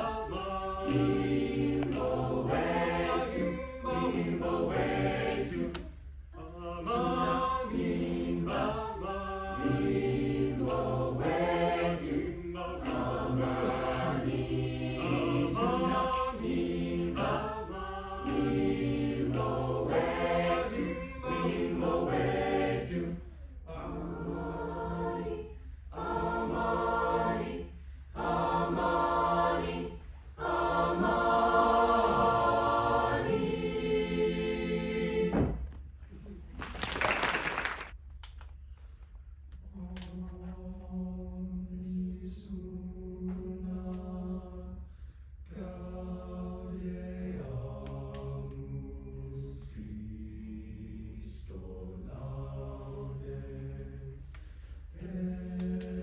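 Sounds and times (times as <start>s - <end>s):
choir singing in harmony: 0.0s - 35.6s, 39.7s - 44.9s, 45.5s - 56.0s
singers breathing: 23.2s - 23.7s, 25.5s - 25.9s, 27.7s - 28.2s, 44.8s - 45.4s, 54.4s - 54.9s.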